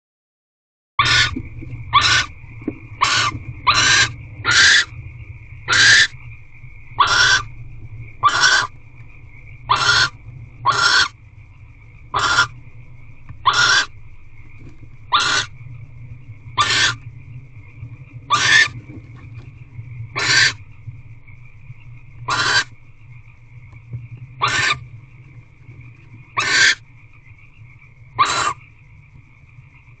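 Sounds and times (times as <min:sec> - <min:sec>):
barn owl hissing calls: 0:01.0 - 0:02.4, 0:03.0 - 0:04.9, 0:05.7 - 0:06.2, 0:07.0 - 0:07.6, 0:08.2 - 0:08.8, 0:09.7 - 0:11.2, 0:12.1 - 0:12.6, 0:13.4 - 0:14.0, 0:15.1 - 0:15.6, 0:16.6 - 0:17.0, 0:18.3 - 0:18.8, 0:20.1 - 0:20.6, 0:22.2 - 0:22.8, 0:24.4 - 0:24.9, 0:26.3 - 0:26.8, 0:28.2 - 0:28.6
faint high whine: 0:01.0 - 0:30.0
steady low hum: 0:01.0 - 0:30.0.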